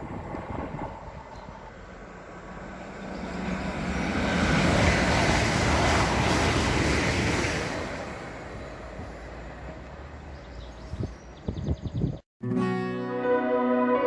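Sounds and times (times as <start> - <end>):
train rushing past: 0.0 - 10.6.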